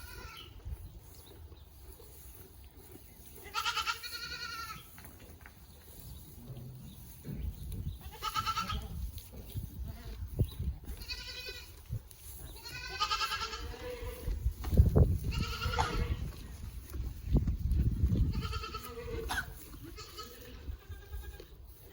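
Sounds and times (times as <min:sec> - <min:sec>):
goats bleating: 0:00.0 - 0:00.6, 0:03.4 - 0:05.0, 0:08.0 - 0:09.1, 0:09.8 - 0:14.5, 0:15.2 - 0:16.7, 0:17.8 - 0:21.9.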